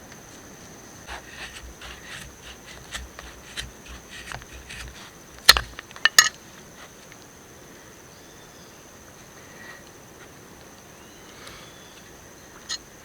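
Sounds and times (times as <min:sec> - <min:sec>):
sharp wood cracks: 0:01.1 - 0:06.0
wood knocking and rustling: 0:01.1 - 0:06.1.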